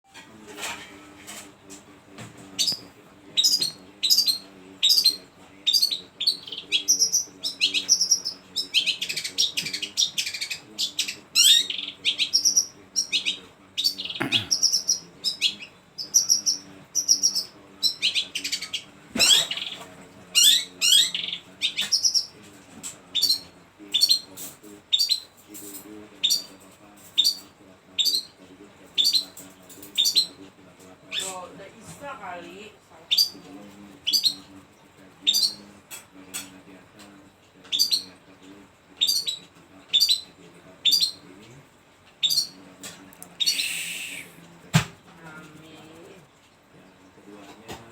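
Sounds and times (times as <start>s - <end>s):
faint low hum: 0.1s - 47.9s
shrike singing sharp chirps: 43.4s - 44.4s.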